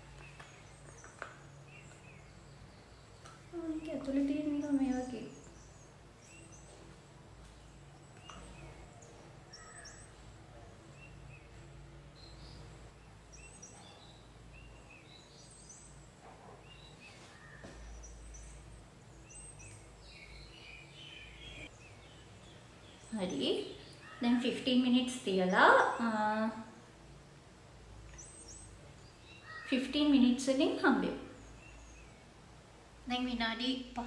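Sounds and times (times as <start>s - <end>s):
faint low hum: 0.0s - 34.0s.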